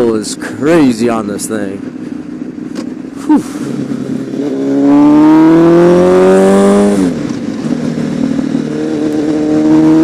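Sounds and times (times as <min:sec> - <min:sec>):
motorcycle engine accelerating: 0:01.8 - 0:10.0.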